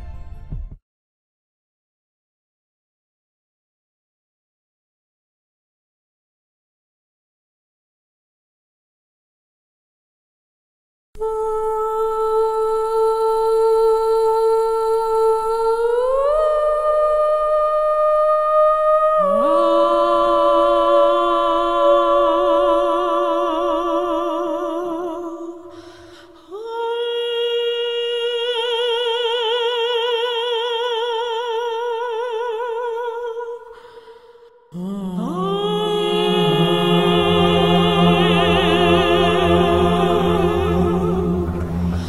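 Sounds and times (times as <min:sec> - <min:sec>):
voices singing in harmony: 0:11.2 - 0:33.8, 0:34.8 - 0:42.0.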